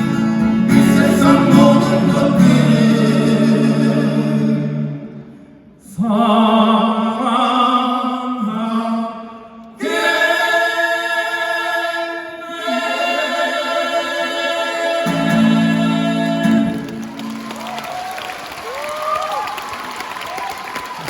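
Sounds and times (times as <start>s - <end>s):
male vocal quartet singing: 0.4s - 17.2s.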